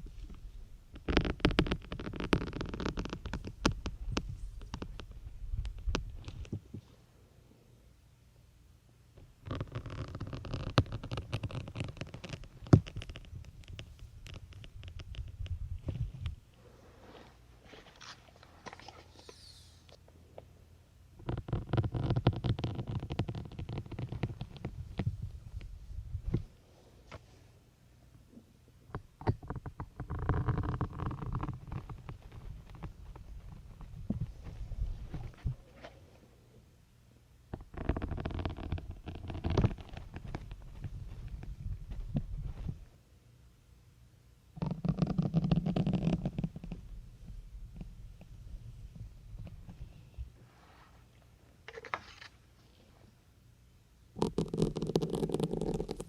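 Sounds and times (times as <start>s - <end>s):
faint crackle: 9.4s - 20.0s, 29.2s - 36.1s, 37.5s - 43.0s.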